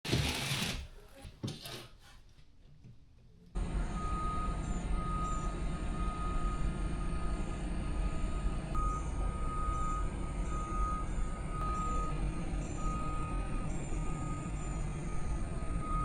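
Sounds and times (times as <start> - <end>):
low engine rumble: 3.6 - 16.0
reversing alarm beeping: 3.6 - 16.0.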